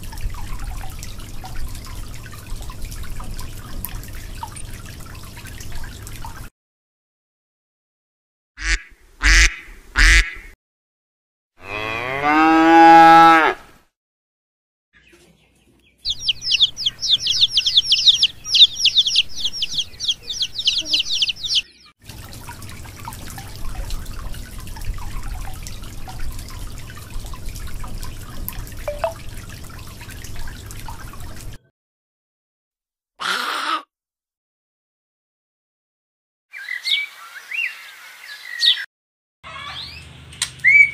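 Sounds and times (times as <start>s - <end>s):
cow mooing: 11.6s - 13.7s
chicks peeping: 15.0s - 21.9s
short animal calls: 33.2s - 33.9s.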